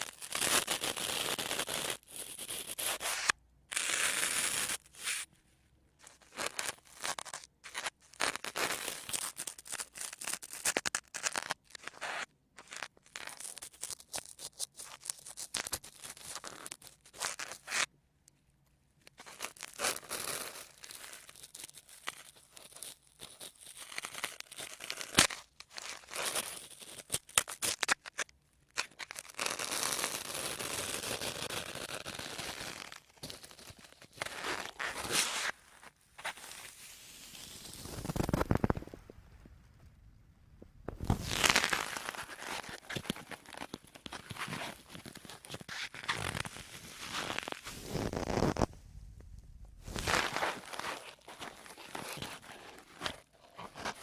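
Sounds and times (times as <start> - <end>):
sponges scrunching: 41.0 - 48.6, 49.9 - 54.0.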